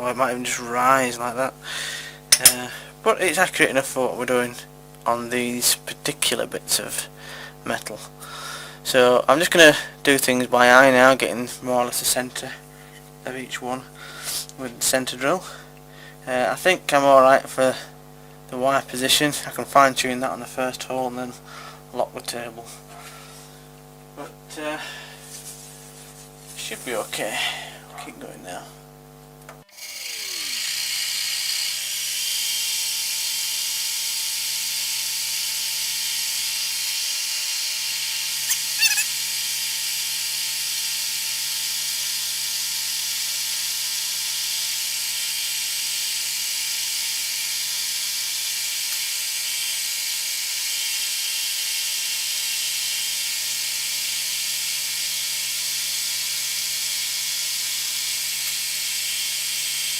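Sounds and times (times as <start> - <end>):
brief machine squeal: 38.4 - 39.2.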